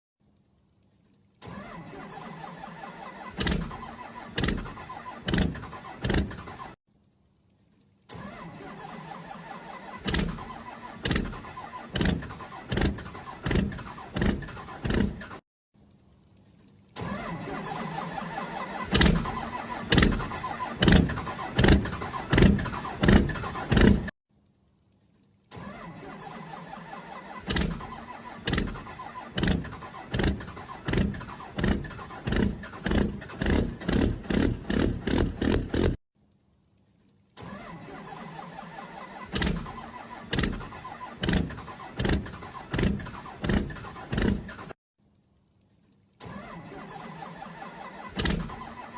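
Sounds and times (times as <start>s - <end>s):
motorbike engine revving: 3.1s - 6.8s, 9.7s - 15.4s, 17.1s - 24.1s, 27.4s - 36.0s, 39.3s - 44.8s.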